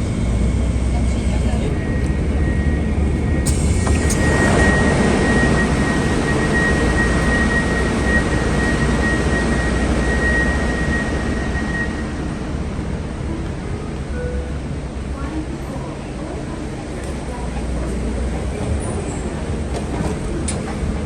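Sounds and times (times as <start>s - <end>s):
airliner cabin rumble and hiss: 0.0s - 9.2s, 15.2s - 21.0s
thin steady whine: 0.3s - 12.4s.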